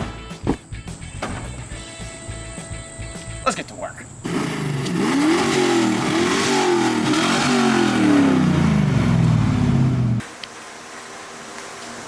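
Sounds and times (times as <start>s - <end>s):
car engine revving: 4.2s - 10.2s.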